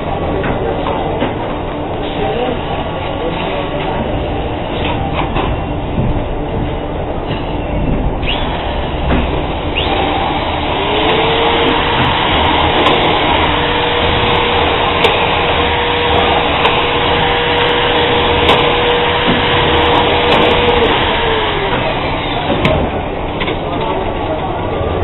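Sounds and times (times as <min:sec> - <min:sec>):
air conditioner rushing air: 0:00.0 - 0:25.0
motor hum: 0:00.0 - 0:25.0.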